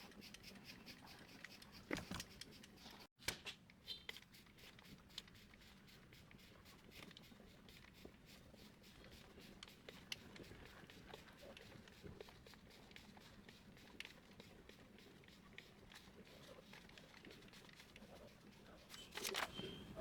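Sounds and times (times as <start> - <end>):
plastic parts clicking and rattling: 18.9 - 20.0.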